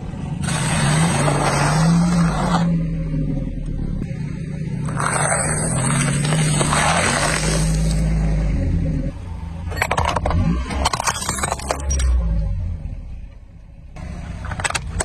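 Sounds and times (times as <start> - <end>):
car engine running slowly: 2.7 - 6.4.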